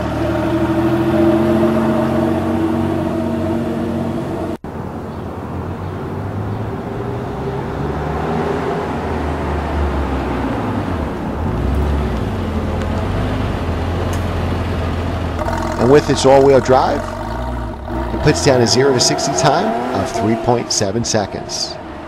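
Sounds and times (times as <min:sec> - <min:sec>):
car engine running: 0:00.0 - 0:04.6, 0:11.1 - 0:22.0
car moving with low rumble: 0:00.0 - 0:22.0.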